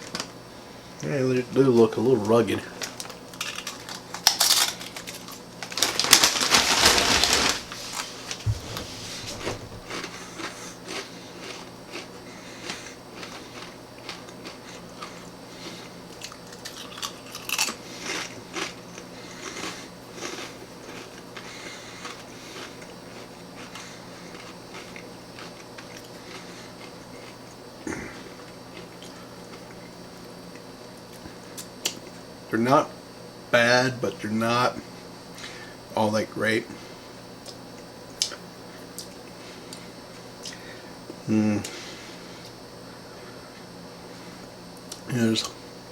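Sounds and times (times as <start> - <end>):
chip crunching while chewing: 2.7 - 8.8, 9.9 - 32.1.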